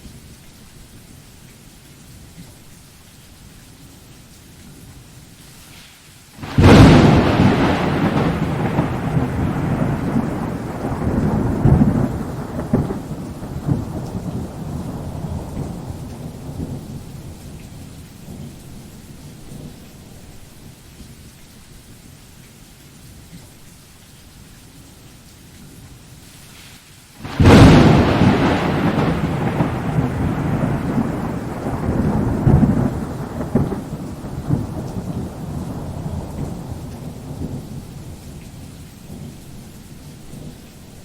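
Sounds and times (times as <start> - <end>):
steady rain: 0.0 - 41.0
thunder clap and rumble: 6.4 - 19.8, 27.2 - 39.3.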